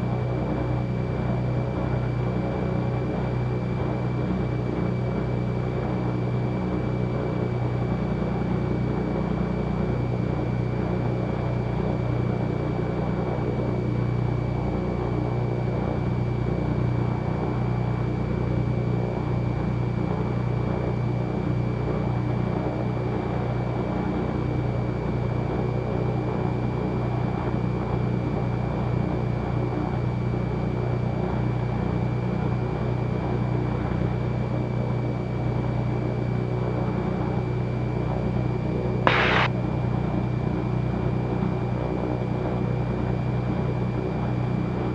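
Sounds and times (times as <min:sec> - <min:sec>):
piston aircraft engines droning: 0:00.0 - 0:24.3, 0:39.1 - 0:39.5
thin high whine: 0:39.1 - 0:39.5.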